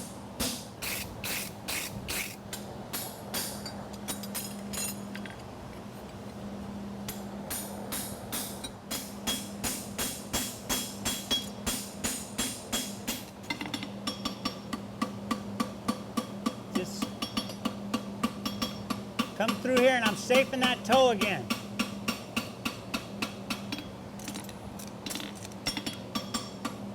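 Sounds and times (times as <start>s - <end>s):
hammer striking steel on anvil: 7.5s - 13.2s.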